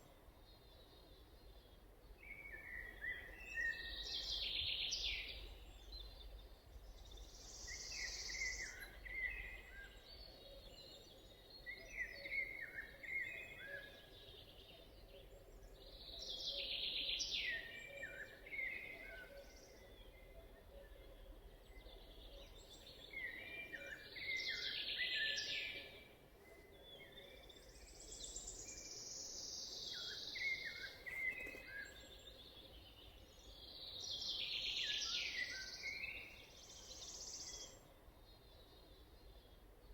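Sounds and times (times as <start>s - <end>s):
songbird singing: 0.0s - 39.9s
soft bird chirps: 26.5s - 37.8s.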